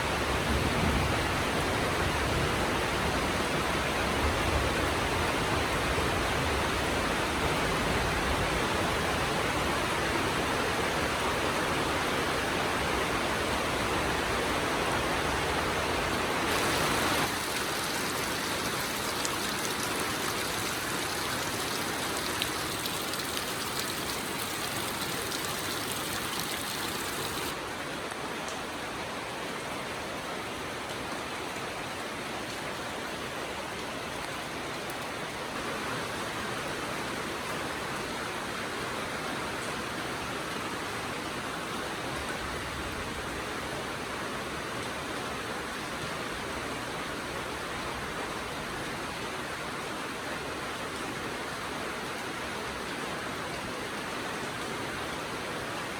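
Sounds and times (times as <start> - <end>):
steady rainfall: 0.0 - 55.9.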